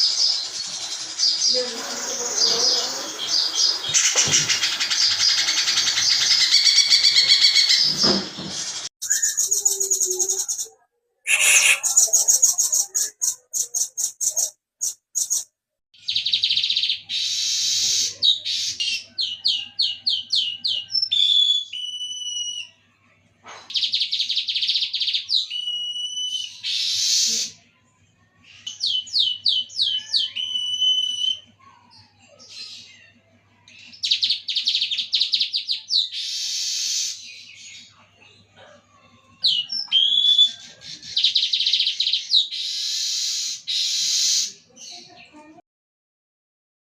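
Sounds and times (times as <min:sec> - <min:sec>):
songbird singing trills and whistles: 0:00.0 - 0:22.8, 0:23.7 - 0:27.6, 0:28.5 - 0:31.5, 0:39.4 - 0:45.2.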